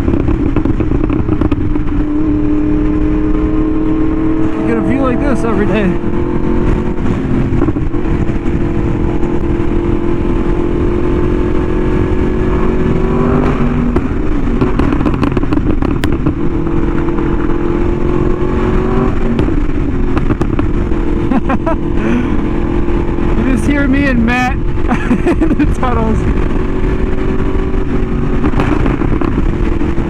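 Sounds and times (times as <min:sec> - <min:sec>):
motorcycle engine cruising: 0:00.0 - 0:30.0
wind rush on microphone: 0:00.0 - 0:30.0.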